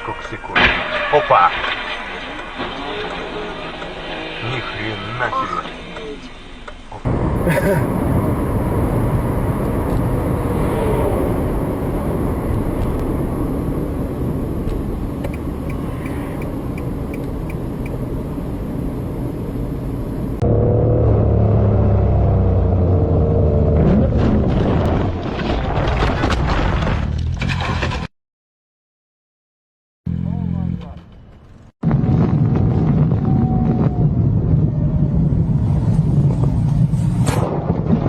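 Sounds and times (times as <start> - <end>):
car engine and road noise: 0.0 - 24.9, 30.1 - 31.8, 34.4 - 37.4
low engine hum: 7.1 - 24.9.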